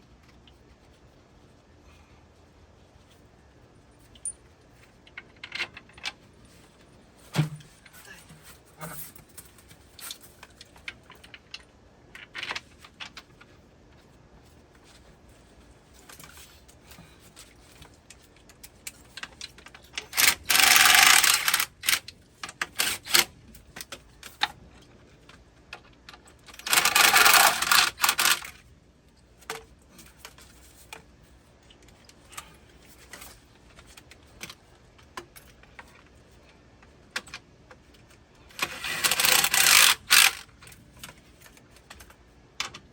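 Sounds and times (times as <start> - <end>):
screws and tools clattering: 20.0 - 23.3, 26.5 - 28.6, 38.5 - 40.5.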